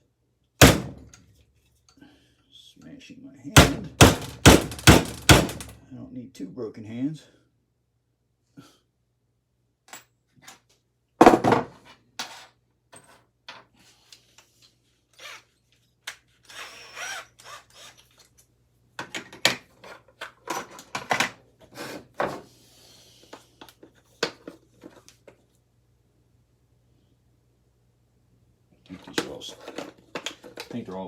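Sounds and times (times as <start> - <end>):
loud knock: 0.6 - 1.0, 3.6 - 5.8.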